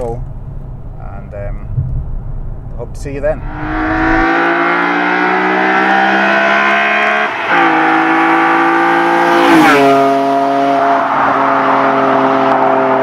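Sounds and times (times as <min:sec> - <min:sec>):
car engine revving and shifting: 0:03.4 - 0:13.0.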